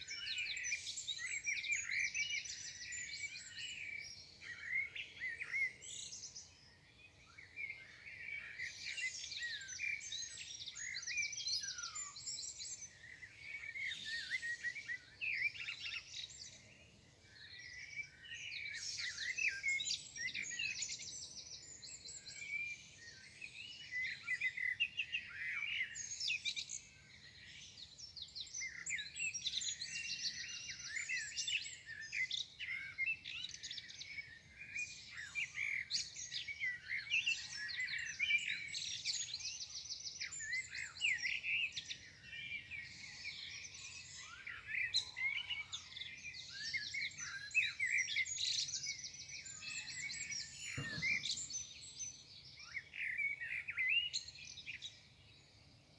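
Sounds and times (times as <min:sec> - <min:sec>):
songbirds singing: 0:00.0 - 0:55.9.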